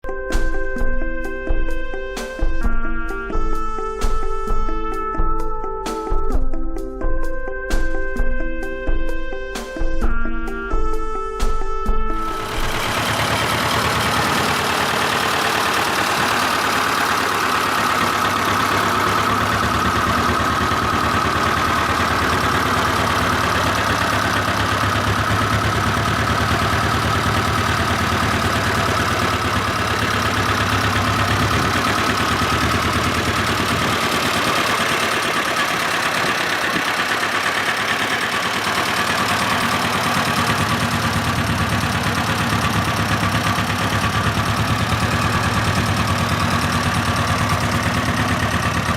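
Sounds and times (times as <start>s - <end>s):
tractor engine idling: 12.2s - 48.9s.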